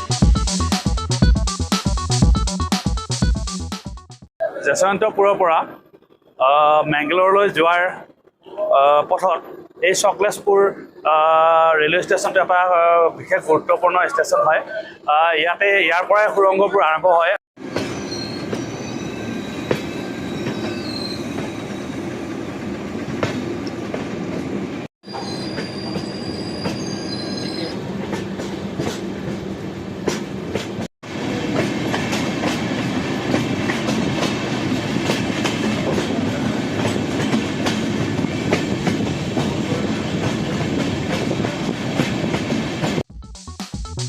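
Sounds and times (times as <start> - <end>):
train rumbling on track: 5.2 - 14.5, 17.6 - 43.1
high wheel squeals: 17.6 - 22.2, 25.0 - 27.9.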